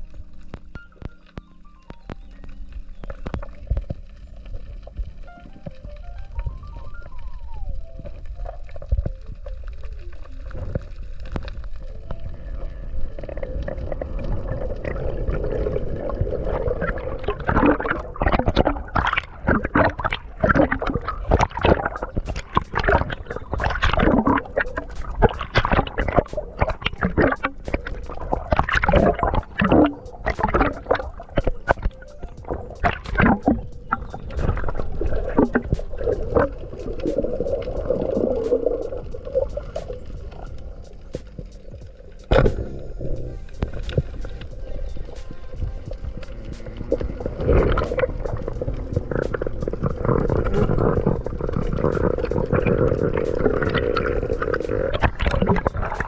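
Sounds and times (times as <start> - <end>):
water gurgling and sloshing: 0.0 - 56.0
rapid splashes: 13.3 - 56.0.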